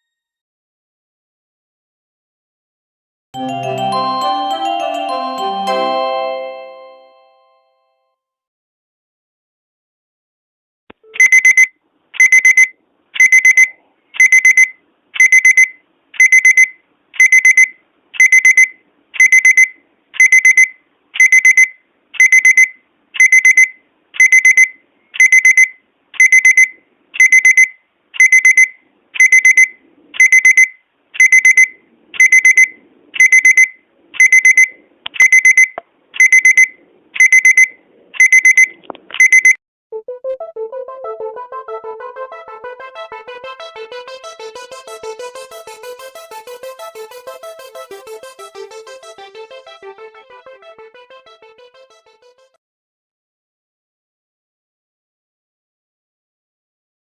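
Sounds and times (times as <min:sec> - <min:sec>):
pulsed electronic beep ringtone: 0:11.2 - 0:39.6.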